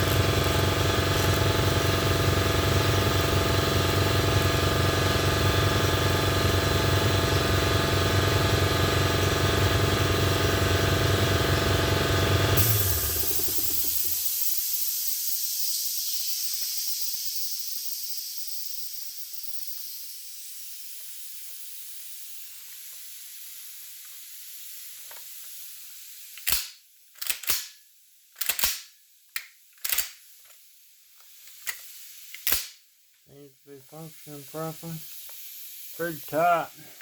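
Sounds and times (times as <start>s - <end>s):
loud hiss: 12.6s - 26.8s, 30.1s - 37.0s
shotgun action clicking: 26.4s - 27.7s, 28.4s - 30.2s.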